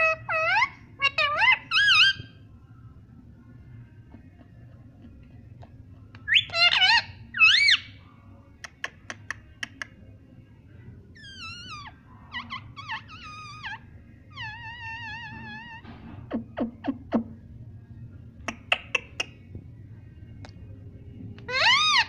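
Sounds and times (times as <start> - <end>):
parrot whistling: 21.5 - 22.0.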